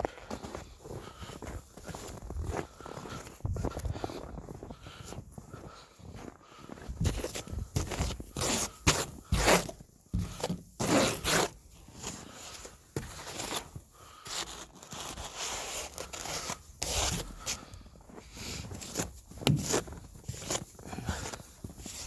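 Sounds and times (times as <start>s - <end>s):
rubbing and scraping noises: 7.0s - 22.0s.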